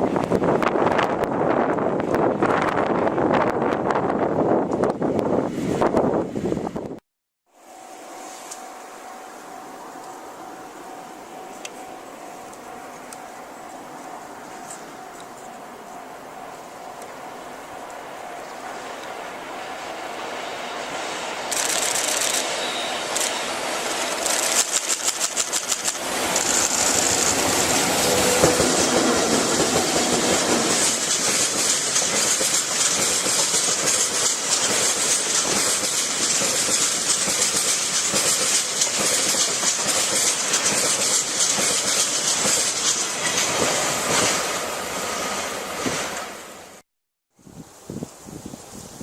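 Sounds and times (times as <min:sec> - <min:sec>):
train wheel clacks over rail joints: 0:21.5 - 0:22.6, 0:23.2 - 0:44.6.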